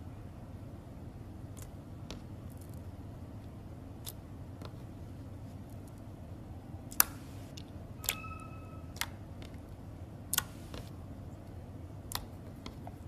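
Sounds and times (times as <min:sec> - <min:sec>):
low steady hum: 0:00.0 - 0:13.0
brief squeak: 0:08.0 - 0:09.0.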